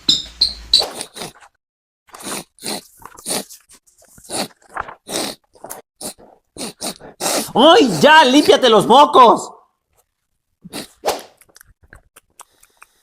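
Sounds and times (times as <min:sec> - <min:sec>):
crunching mouth noises: 0:00.8 - 0:07.6, 0:09.9 - 0:13.0
person snorting and sniffling: 0:00.8 - 0:08.0, 0:10.6 - 0:11.4.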